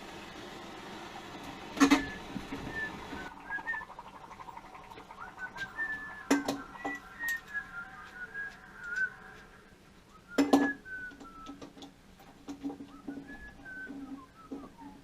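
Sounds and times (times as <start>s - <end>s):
person whistling a slow tune: 2.0s - 3.9s, 5.2s - 9.4s, 10.1s - 11.6s, 12.9s - 15.0s.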